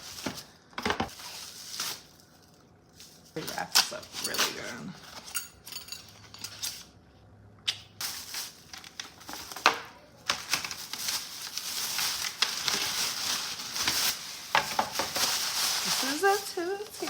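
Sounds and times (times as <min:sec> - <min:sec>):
packaging crinkling and rustling: 0:00.0 - 0:05.3, 0:08.0 - 0:17.0
packaging snapping: 0:10.3 - 0:16.2.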